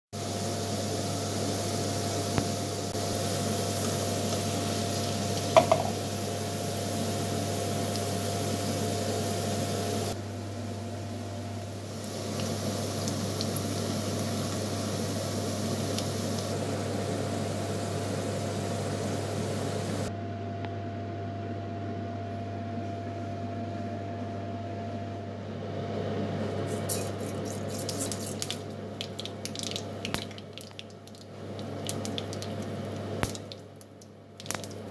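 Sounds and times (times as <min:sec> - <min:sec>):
food sizzling in oil: 0:00.2 - 0:10.2, 0:11.6 - 0:20.1, 0:26.7 - 0:34.9
hot oil crackling and popping: 0:02.3 - 0:10.2, 0:11.5 - 0:16.6, 0:26.9 - 0:34.9.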